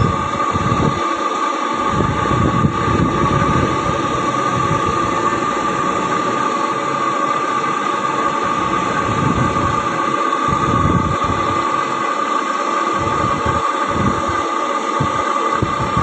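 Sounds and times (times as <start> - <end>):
constant high whine: 0.0 - 16.0
truck engine rumbling: 1.8 - 12.0.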